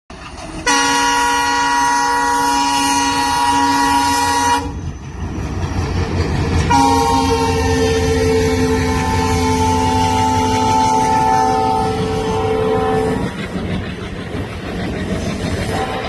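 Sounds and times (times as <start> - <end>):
train rumbling on track: 0.1 - 16.0
locomotive air horn blasts: 0.6 - 4.8, 6.7 - 13.2, 15.7 - 16.0.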